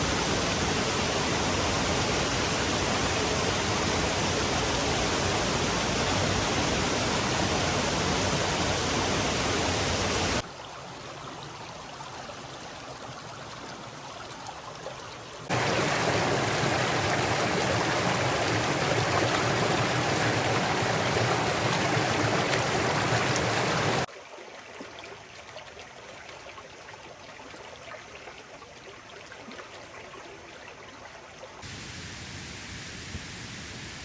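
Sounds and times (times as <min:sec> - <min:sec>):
waterfall roaring: 0:00.0 - 0:10.4, 0:15.5 - 0:24.1
quiet wash of water: 0:00.0 - 0:34.0.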